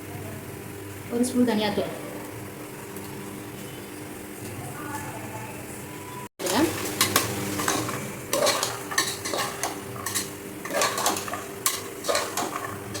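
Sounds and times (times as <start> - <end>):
metal spoon scraping a pot: 6.4 - 13.0.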